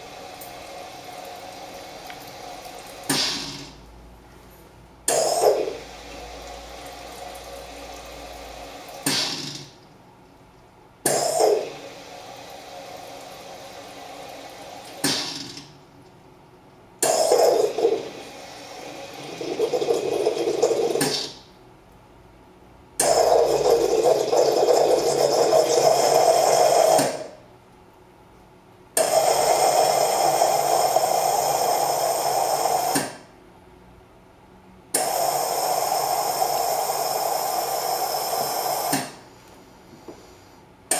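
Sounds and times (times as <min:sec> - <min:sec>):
coffee machine steam bursts: 0:01.1 - 0:03.8, 0:05.1 - 0:09.8, 0:11.1 - 0:15.7, 0:17.0 - 0:21.4, 0:23.0 - 0:27.4, 0:29.0 - 0:33.2, 0:35.0 - 0:39.3.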